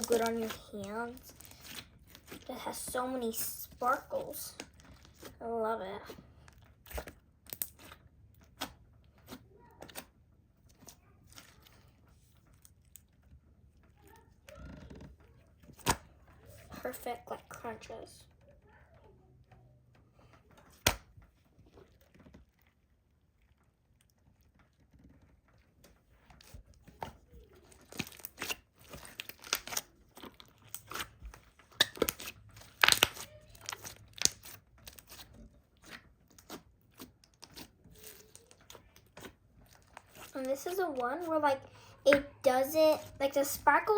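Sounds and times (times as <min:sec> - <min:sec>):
slime crackling and popping: 0:00.0 - 0:05.4, 0:06.4 - 0:13.2, 0:27.6 - 0:41.0.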